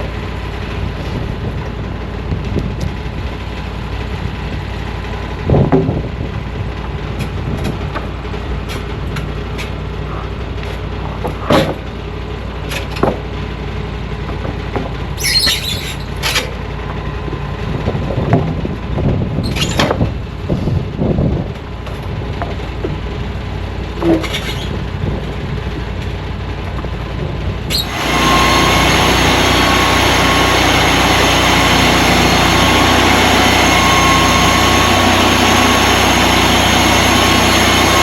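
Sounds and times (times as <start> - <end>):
sawmill engine running: 0.0 - 38.0
knocks and clanks: 7.2 - 13.4, 14.2 - 16.6, 19.5 - 20.2, 21.5 - 23.0, 23.9 - 26.9.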